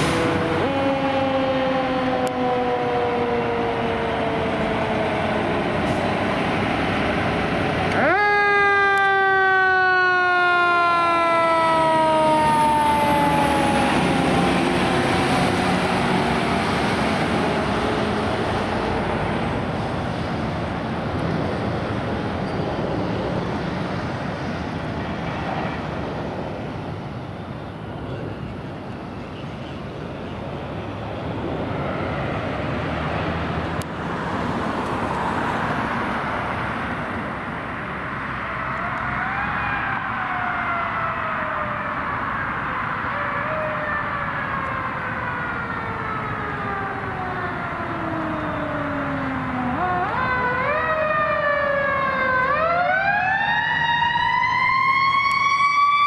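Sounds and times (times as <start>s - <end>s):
heavy truck engine and road noise: 0.0s - 56.0s
mechanical siren winding down: 7.9s - 16.6s, 38.4s - 56.0s.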